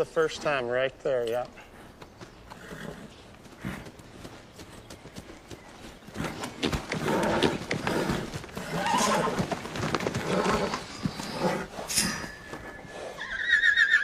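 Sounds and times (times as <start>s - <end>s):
horse hooves knocking: 1.3s - 13.0s
horse whinnying: 2.5s - 3.8s, 6.2s - 14.0s.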